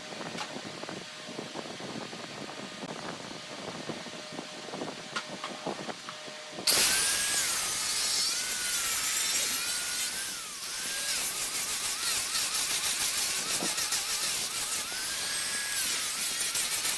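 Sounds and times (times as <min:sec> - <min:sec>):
power tool working wood: 0:06.7 - 0:16.9.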